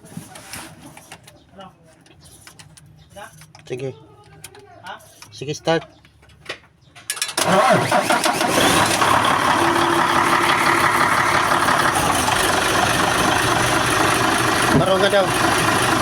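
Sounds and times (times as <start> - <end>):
diesel engine starter cranking: 7.1 - 16.0
diesel truck engine running: 7.4 - 16.0.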